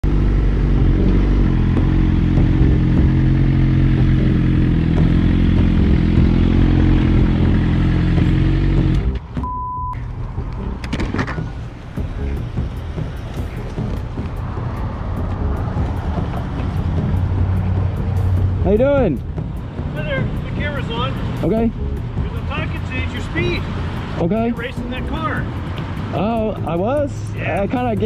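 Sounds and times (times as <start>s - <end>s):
vehicle engine running loud: 0.0s - 9.4s, 11.5s - 26.2s
short electronic beep: 9.4s - 10.0s.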